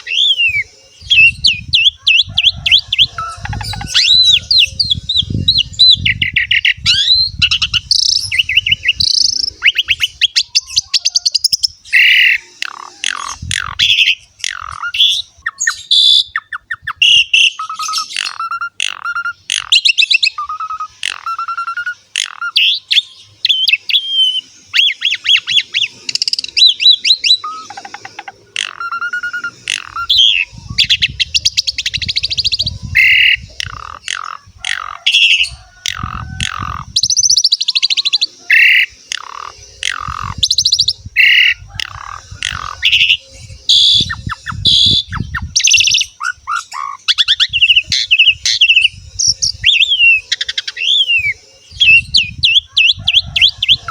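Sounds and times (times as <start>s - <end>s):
starling singing whistles and trills: 0.0s - 53.9s.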